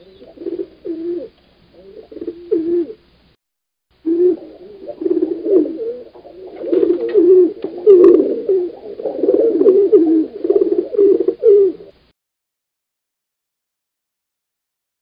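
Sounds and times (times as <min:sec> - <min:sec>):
pigeons cooing: 0:00.0 - 0:03.0, 0:04.0 - 0:12.0.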